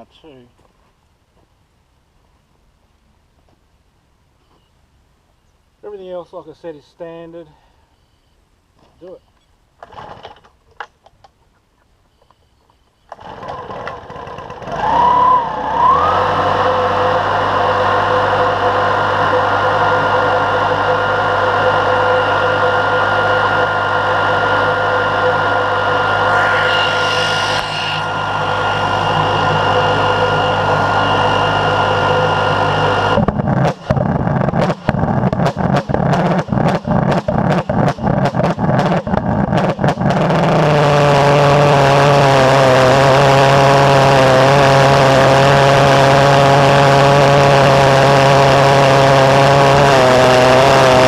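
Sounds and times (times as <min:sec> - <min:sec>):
pulse jet engine droning and whistling: 0:14.9 - 0:33.3
rapid irregular engine pops: 0:33.2 - 0:40.3.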